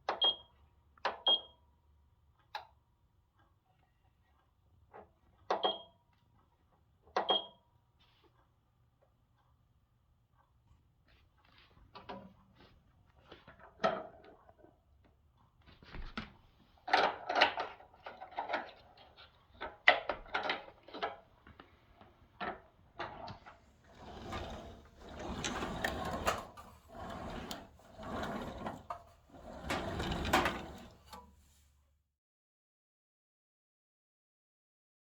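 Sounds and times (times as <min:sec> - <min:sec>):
scraping or rubbing sounds: 0:23.8 - 0:31.6.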